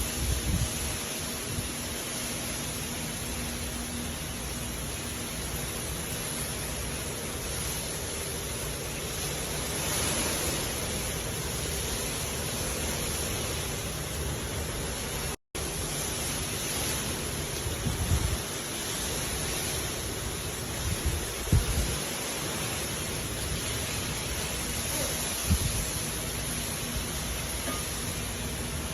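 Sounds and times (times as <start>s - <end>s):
hard rain hissing: 0.0s - 28.9s.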